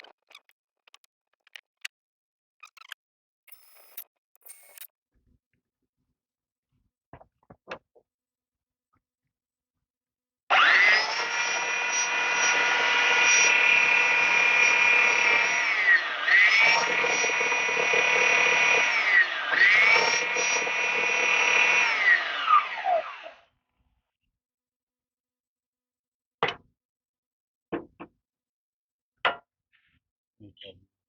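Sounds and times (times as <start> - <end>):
electric power tool motor: 10.5 - 23.5.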